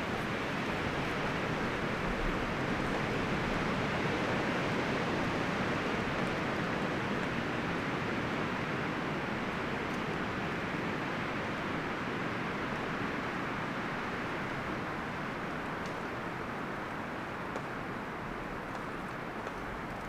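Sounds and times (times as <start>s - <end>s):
wind rustling forest trees: 0.0s - 20.0s.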